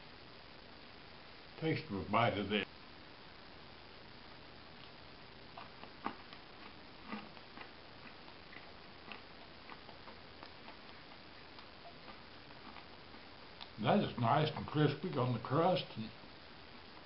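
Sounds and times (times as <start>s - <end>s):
steady hiss: 0.0s - 17.0s
person chewing crispy food: 4.8s - 13.8s.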